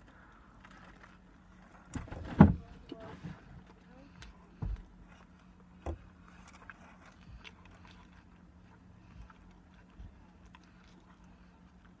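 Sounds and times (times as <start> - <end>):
faint steady low hum: 0.0 - 12.0
quiet chewing mouth sounds: 3.6 - 12.0.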